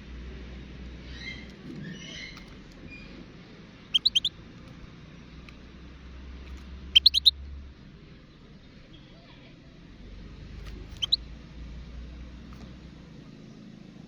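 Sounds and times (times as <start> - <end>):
bird high chirping calls: 3.9 - 4.3, 7.0 - 7.3, 10.9 - 11.2.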